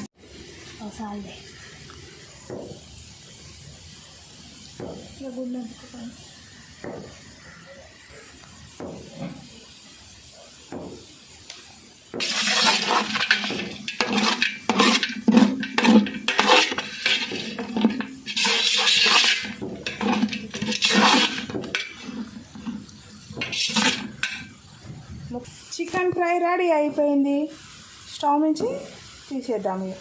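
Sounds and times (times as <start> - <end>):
metal spoon scraping a pan: 12.2 - 24.6.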